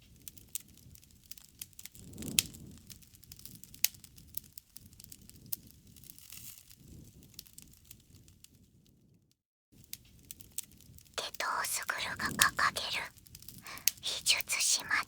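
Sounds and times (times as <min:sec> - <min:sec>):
low rumble of flames: 0:00.1 - 0:08.9
campfire crackling and popping: 0:00.2 - 0:06.8, 0:09.8 - 0:15.0.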